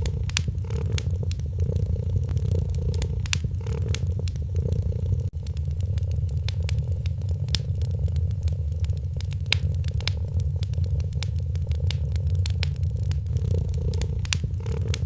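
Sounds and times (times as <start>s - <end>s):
cat purring: 0.0s - 15.0s
wood fire crackling: 0.0s - 15.0s.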